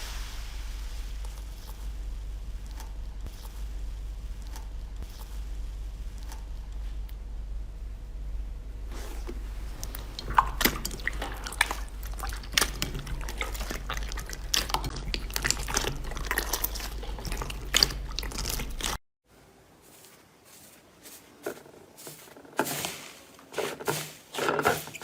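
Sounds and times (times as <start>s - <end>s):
steady low hum: 0.0s - 25.0s
slime squishing and crackling: 9.7s - 19.0s.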